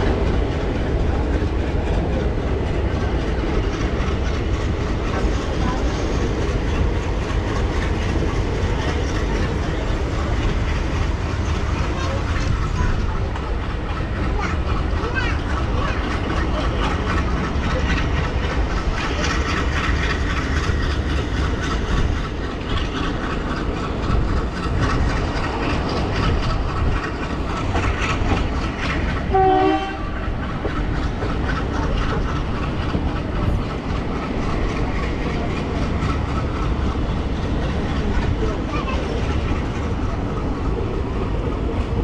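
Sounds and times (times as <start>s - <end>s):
train wheels clattering: 0.0s - 42.0s
train horn blast: 29.3s - 30.2s.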